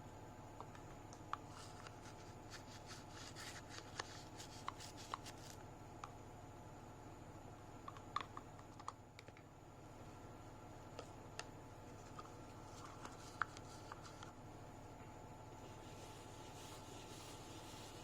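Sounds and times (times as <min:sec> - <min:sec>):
steady low hiss: 0:09.5 - 0:18.0.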